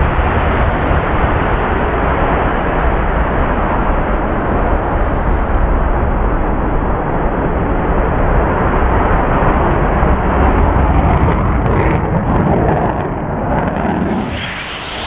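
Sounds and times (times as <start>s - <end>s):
jet engines roaring: 13.6s - 15.0s.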